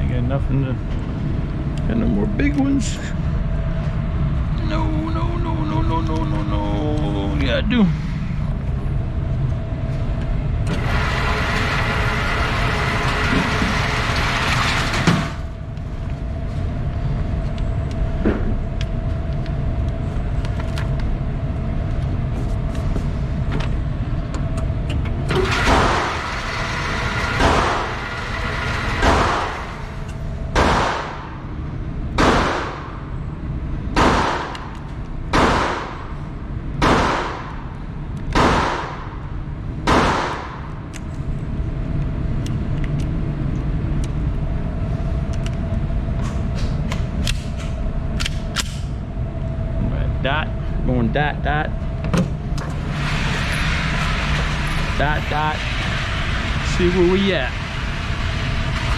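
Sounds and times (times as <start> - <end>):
background hum: 0.0 - 58.9
pistol shots: 30.6 - 31.3, 32.2 - 32.9, 34.0 - 34.7, 35.3 - 36.0, 36.8 - 37.5, 38.3 - 39.1, 39.9 - 40.6.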